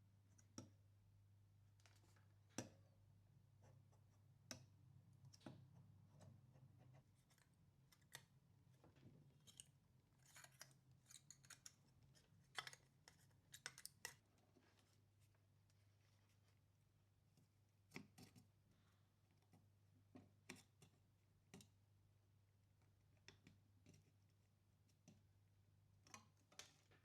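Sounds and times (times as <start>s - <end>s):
faint clicks and snips: 3.6s - 8.4s, 9.4s - 15.0s, 25.9s - 27.0s.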